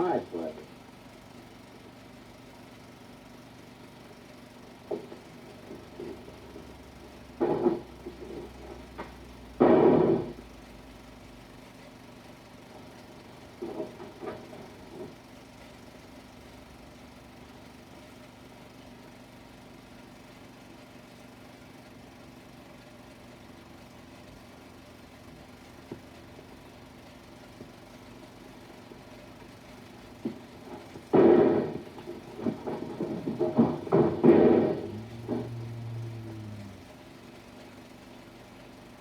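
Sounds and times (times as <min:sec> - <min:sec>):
film soundtrack hum and hiss: 0:00.0 - 0:39.0
soft knocks: 0:07.4 - 0:10.4, 0:30.2 - 0:35.7.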